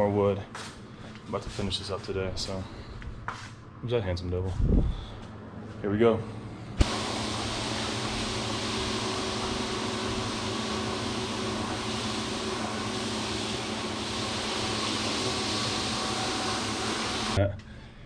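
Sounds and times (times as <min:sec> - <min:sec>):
mechanical hum: 0:00.0 - 0:18.0
broad hiss: 0:06.8 - 0:17.4.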